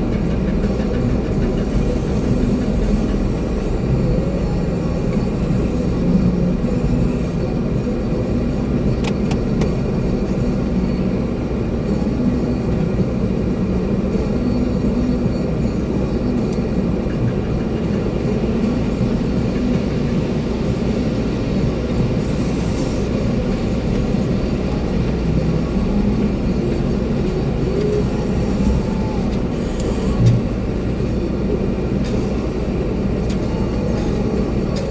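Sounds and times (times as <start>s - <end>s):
concrete mixer truck running: 0.0s - 34.9s.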